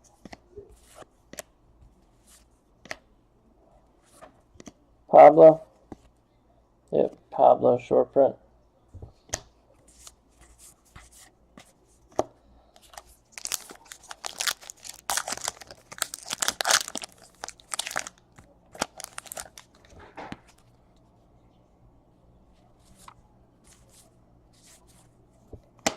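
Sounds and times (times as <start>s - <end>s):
card pack wrapper tearing: 13.4s - 18.2s, 18.8s - 19.8s.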